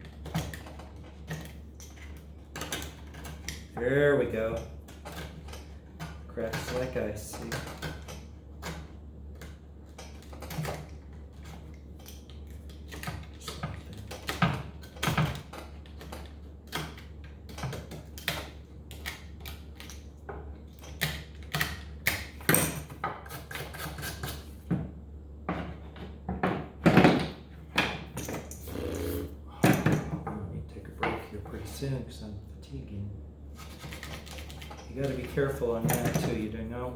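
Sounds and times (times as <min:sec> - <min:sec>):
steady low hum: 0:28.4 - 0:33.6.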